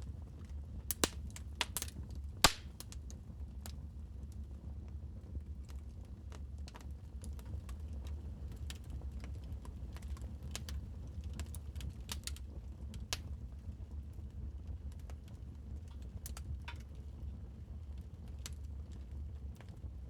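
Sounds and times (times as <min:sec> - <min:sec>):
wood fire crackling: 0:00.3 - 0:04.6, 0:05.5 - 0:19.8.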